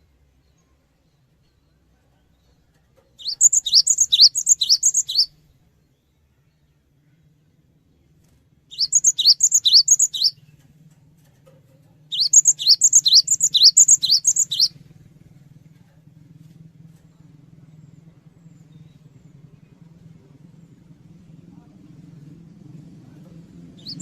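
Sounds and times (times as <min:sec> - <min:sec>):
faint low hum: 0:00.0 - 0:24.0
bird singing two-note phrases: 0:08.8 - 0:10.3.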